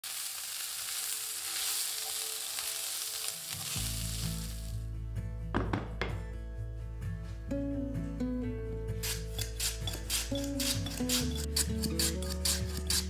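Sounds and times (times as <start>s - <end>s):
food sizzling in a frying pan: 0.0s - 4.8s
background music: 1.2s - 13.0s
spatula scrapes: 9.0s - 13.0s.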